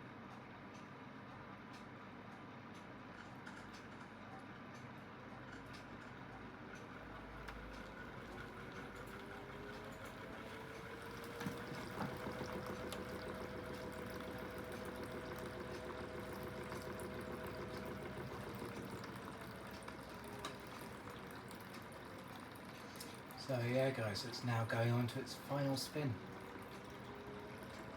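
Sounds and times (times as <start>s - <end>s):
washing machine motor humming: 6.8s - 27.9s
water moving inside machine: 7.4s - 27.9s.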